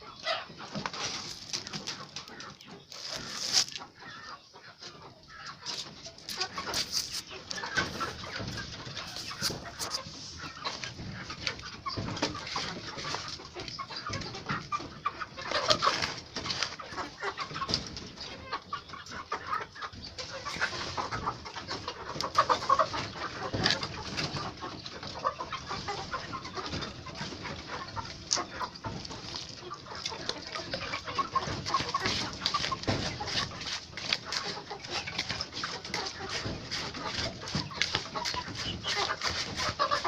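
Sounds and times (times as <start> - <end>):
chickens clucking and calling: 0.0 - 40.0.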